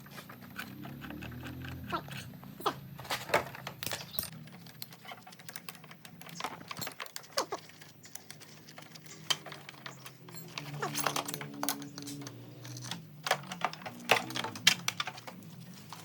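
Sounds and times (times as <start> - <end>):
metallic tool clicks and clinks: 3.8 - 15.1.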